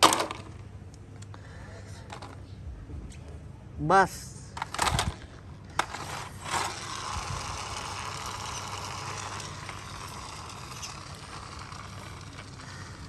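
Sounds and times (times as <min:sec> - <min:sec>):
toy motor and gears whirring: 0:00.0 - 0:00.5, 0:04.6 - 0:13.0.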